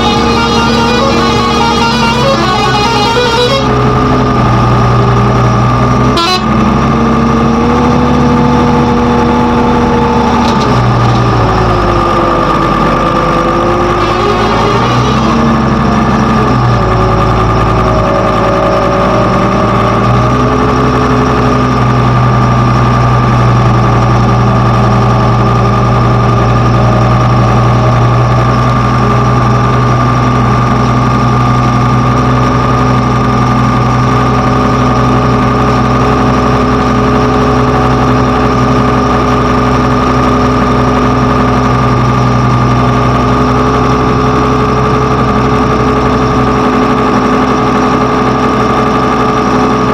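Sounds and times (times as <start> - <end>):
steady high whine: 0.0 - 7.0
heavy diesel engine idling: 0.0 - 49.9.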